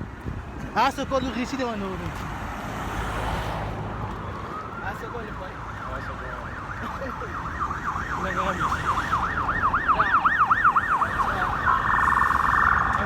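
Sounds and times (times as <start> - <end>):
siren yelping: 4.3 - 13.0.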